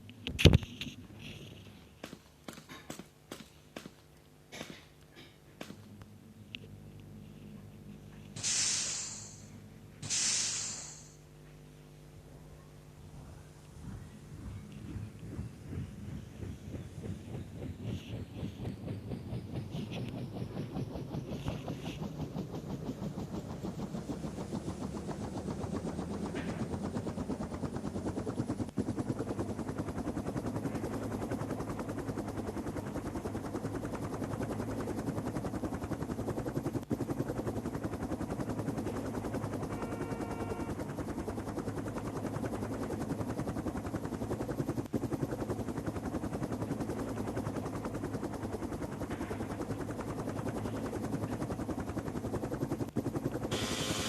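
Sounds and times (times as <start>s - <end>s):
helicopter rotor blades chopping: 7.3s - 11.2s, 13.1s - 54.0s.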